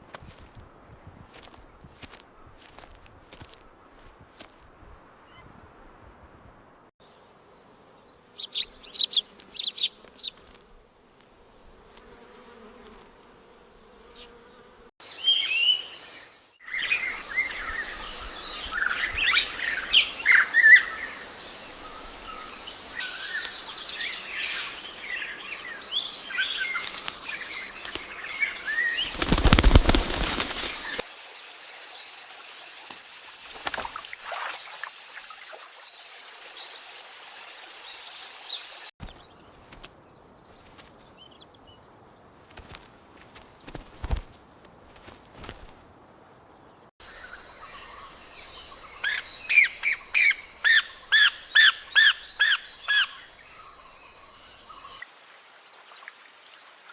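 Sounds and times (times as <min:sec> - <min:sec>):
birds chirping: 0:07.0 - 0:10.7, 0:13.8 - 0:55.0
broad hiss: 0:29.8 - 0:39.0
high-pitched insect drone: 0:30.2 - 0:38.9.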